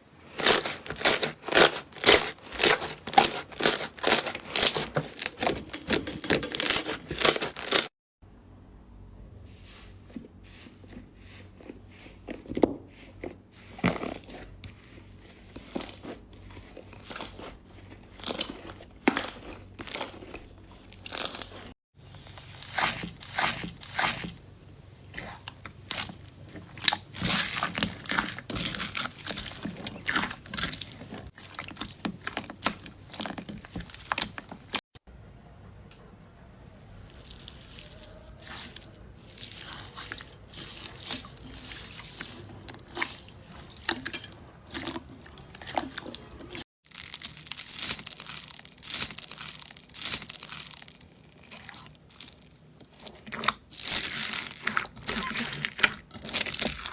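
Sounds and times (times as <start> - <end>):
crunchy slime crackling: 0.0 - 7.9, 13.0 - 24.4, 25.1 - 34.8, 36.7 - 56.9.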